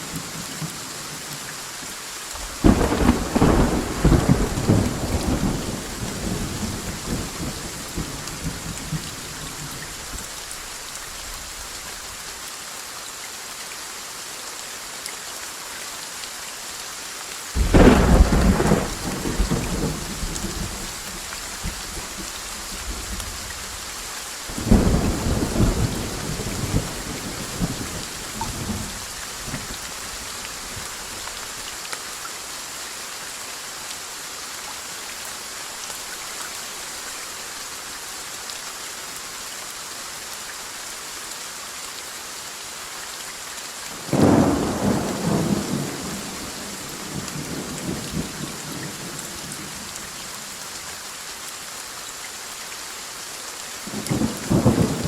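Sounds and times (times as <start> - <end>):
steady rain: 0.0 - 55.0
thunder rumbling: 2.5 - 9.0, 17.6 - 20.9, 44.1 - 48.5.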